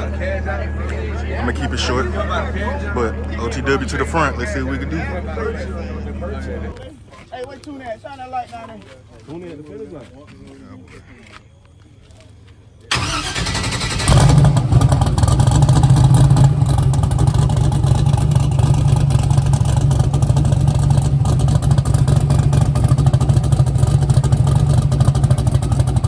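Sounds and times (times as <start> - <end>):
car engine starting and idling: 0.0 - 6.8, 12.8 - 26.0.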